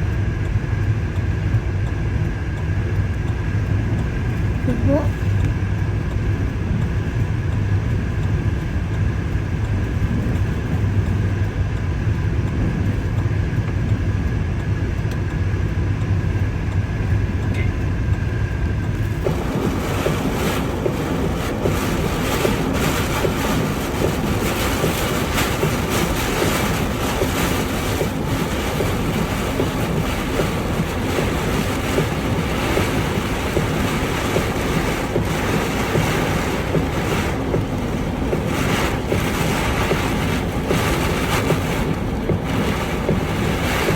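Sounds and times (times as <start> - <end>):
gusting wind blasting microphone: 3.9 - 14.9, 16.2 - 43.9.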